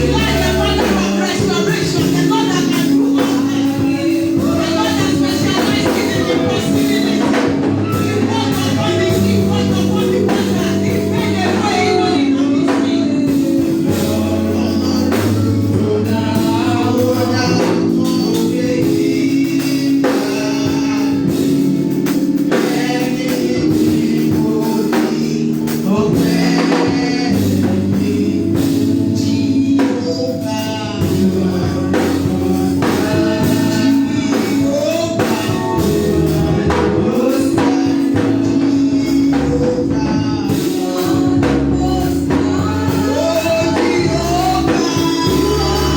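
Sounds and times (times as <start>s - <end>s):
gospel singers with band: 0.0s - 45.9s.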